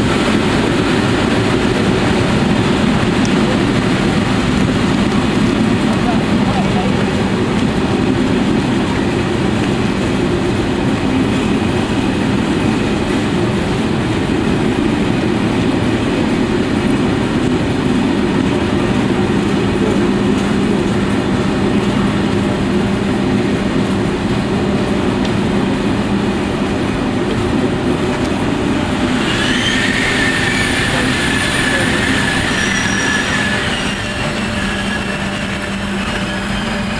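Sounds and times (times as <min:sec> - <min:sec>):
train wheels rumbling on rail: 0:00.0 - 0:36.9.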